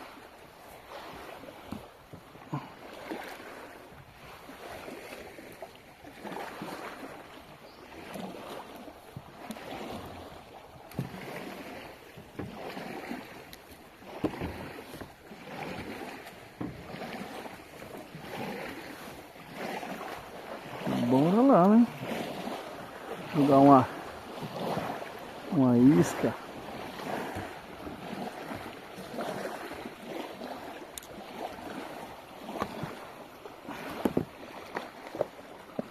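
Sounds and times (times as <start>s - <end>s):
paddle splashing in water: 0.0s - 35.9s
knocks against hull: 10.9s - 20.2s, 33.8s - 35.9s.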